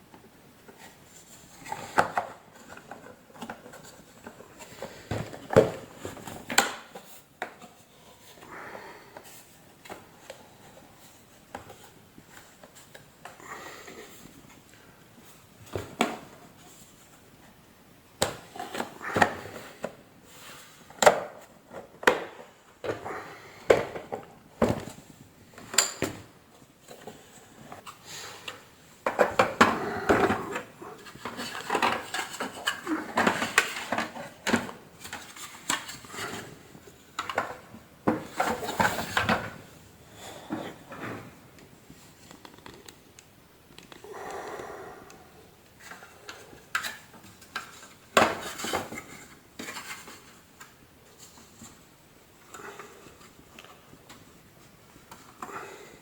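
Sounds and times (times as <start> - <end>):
plastic parts clicking and rattling: 42.2 - 43.0.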